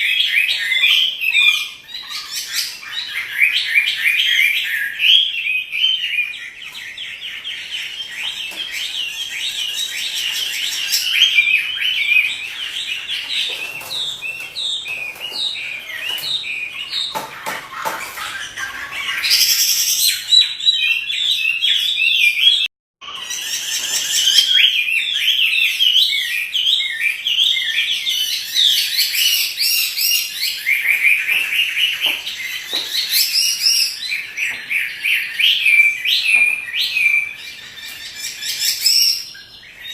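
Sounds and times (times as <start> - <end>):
bird singing whistled phrases: 18.3 - 39.9.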